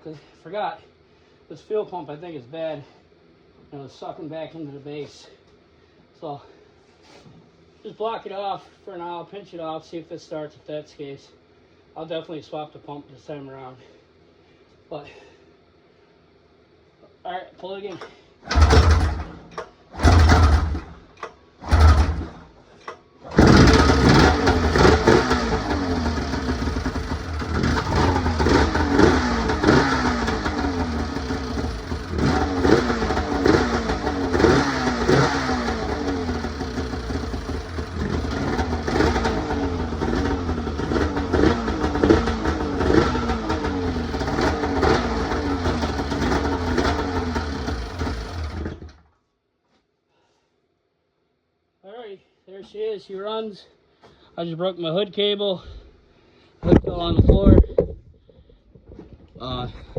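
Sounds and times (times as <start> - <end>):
pull starter cranking: 18.5 - 39.5, 45.2 - 49.0
snowmobile engine revving: 23.3 - 48.9.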